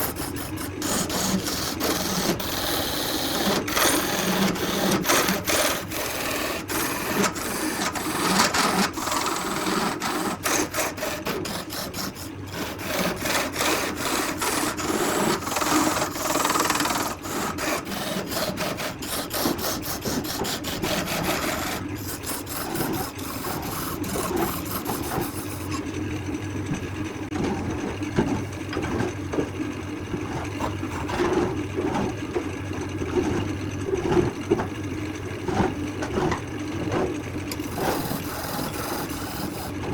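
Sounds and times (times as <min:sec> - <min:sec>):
power tool scraping wood: 0:00.0 - 0:25.9, 0:30.1 - 0:32.4, 0:35.5 - 0:39.9
motor hum: 0:00.0 - 0:39.9.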